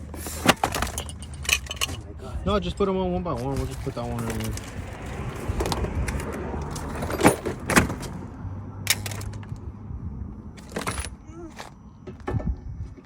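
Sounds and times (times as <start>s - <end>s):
metal parts and tools clinking: 0.0s - 2.3s, 3.4s - 8.2s, 8.8s - 9.6s, 10.6s - 11.8s.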